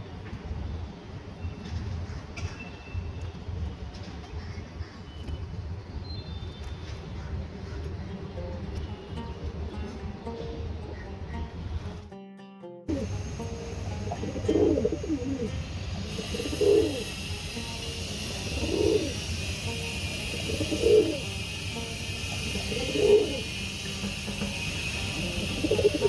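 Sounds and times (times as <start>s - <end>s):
dove cooing: 12.9s - 26.0s
steady high hiss: 12.9s - 26.0s.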